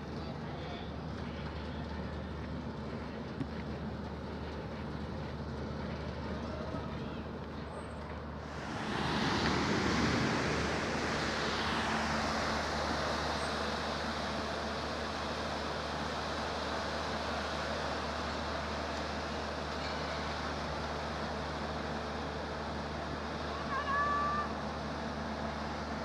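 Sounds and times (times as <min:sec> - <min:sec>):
traffic rumble: 0:00.0 - 0:26.0
vehicle passing close: 0:08.4 - 0:17.2.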